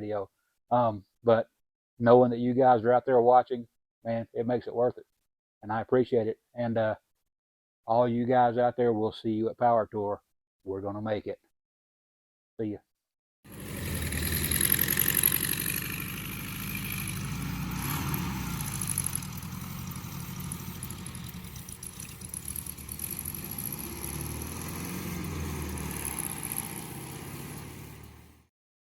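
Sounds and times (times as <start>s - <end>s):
car engine idling: 13.5s - 28.3s.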